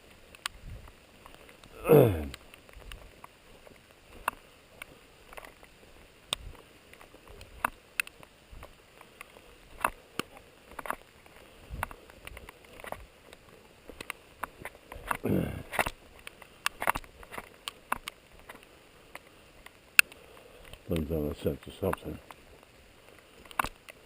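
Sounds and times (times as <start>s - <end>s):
footsteps on wet ground: 0.0s - 24.0s
sharp ticks and taps: 15.8s - 22.4s.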